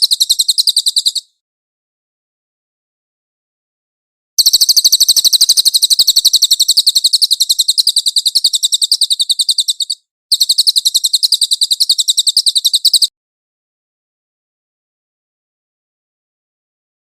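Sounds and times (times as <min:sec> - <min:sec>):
songbird rattling trill: 0:00.0 - 0:01.3, 0:04.4 - 0:13.1.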